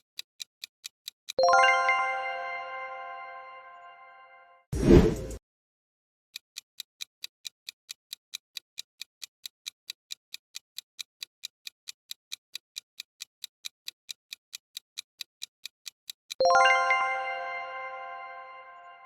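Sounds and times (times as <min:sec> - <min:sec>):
countdown timer ticking: 0:01.3 - 0:03.4, 0:15.4 - 0:19.0.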